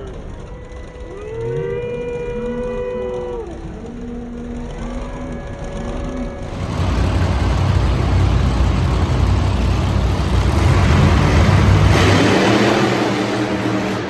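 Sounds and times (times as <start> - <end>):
loud truck engine running: 6.4 - 14.0.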